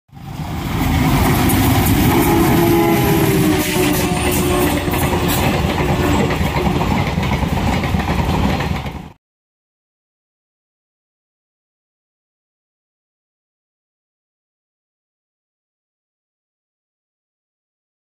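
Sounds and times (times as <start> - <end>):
train rumbling on rails: 0.1 - 9.2.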